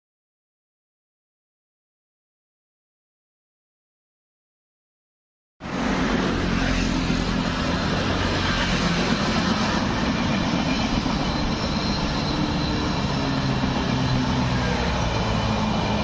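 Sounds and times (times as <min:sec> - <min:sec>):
train wheels rumbling on rail: 0:05.6 - 0:16.0.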